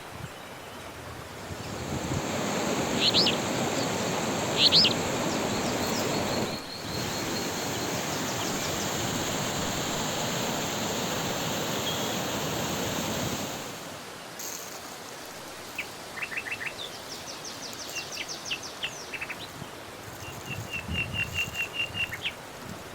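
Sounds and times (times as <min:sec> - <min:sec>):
steady rushing noise: 0:01.4 - 0:14.2
small birds chirping: 0:02.6 - 0:09.8, 0:15.6 - 0:22.4.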